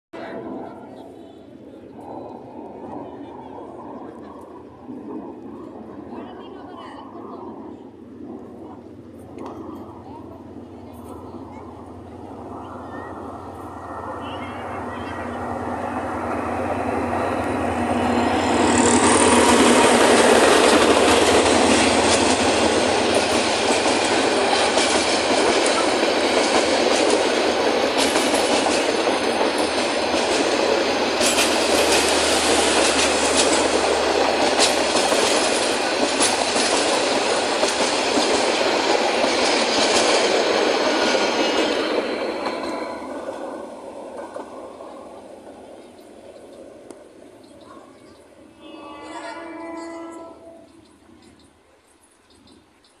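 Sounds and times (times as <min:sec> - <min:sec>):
wheel-on-rail noise: 0:00.2 - 0:53.0
diesel locomotive rumble: 0:06.1 - 0:51.6
clacking over rail joints: 0:18.5 - 0:47.8.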